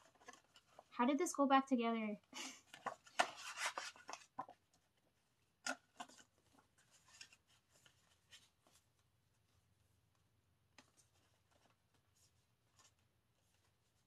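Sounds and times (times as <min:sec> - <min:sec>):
cardboard and paper rustling: 0:00.0 - 0:01.0, 0:02.4 - 0:09.8, 0:10.7 - 0:14.0.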